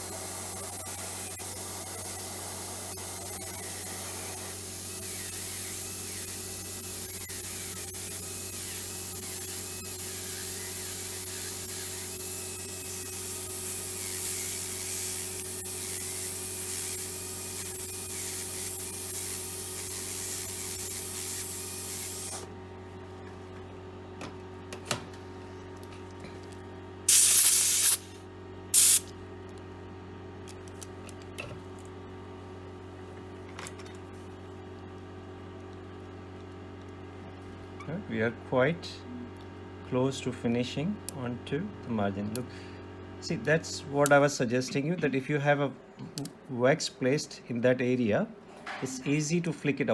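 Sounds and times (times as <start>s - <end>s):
dental handpiece whining: 0.0s - 22.5s, 28.8s - 29.1s
short loud hissing bursts: 0.0s - 22.5s, 27.1s - 29.1s.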